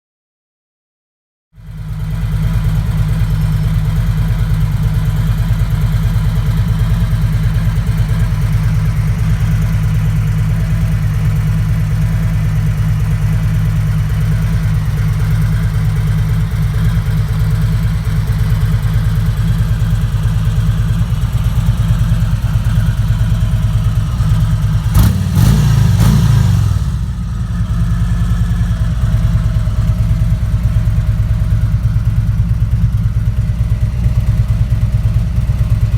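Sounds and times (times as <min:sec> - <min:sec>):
motorcycle engine idling: 0:01.6 - 0:35.9
engine revving: 0:24.0 - 0:27.7.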